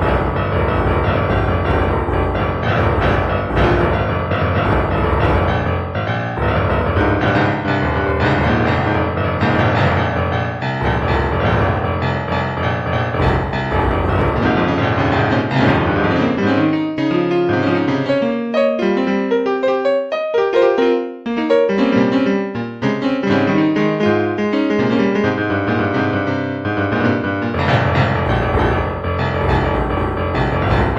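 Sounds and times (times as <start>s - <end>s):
music with bass line: 0.0s - 19.0s, 24.8s - 30.9s
piano notes: 0.0s - 30.9s.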